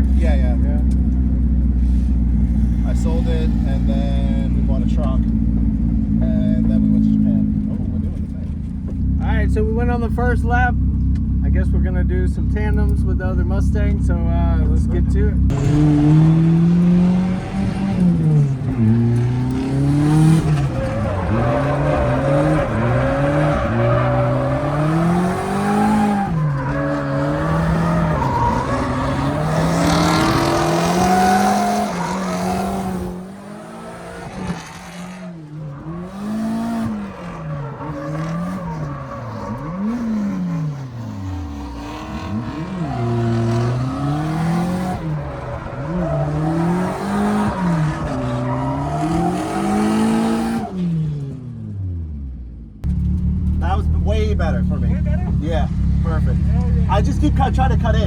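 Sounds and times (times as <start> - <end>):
car engine revving: 0.0 - 58.0
tyres squealing: 15.5 - 50.8.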